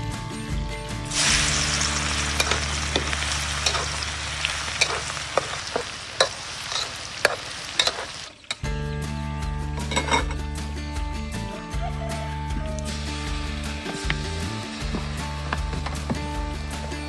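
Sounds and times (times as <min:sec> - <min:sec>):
deep-frying sizzle with pops: 0:00.5 - 0:08.8, 0:12.6 - 0:17.0.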